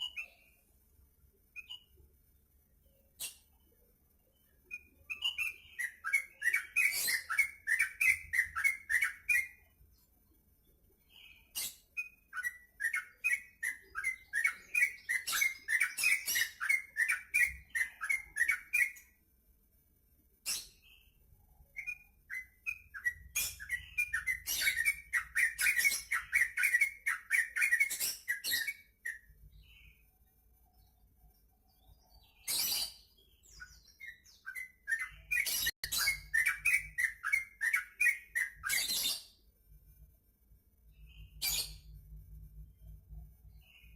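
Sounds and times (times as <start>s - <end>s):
bird chattering song: 0.0s - 0.6s, 4.3s - 10.1s, 11.0s - 19.2s, 20.4s - 30.1s, 31.7s - 39.4s.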